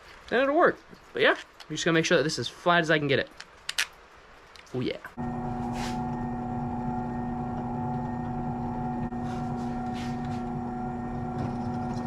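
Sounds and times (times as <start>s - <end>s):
electric sander humming: 5.2s - 12.0s.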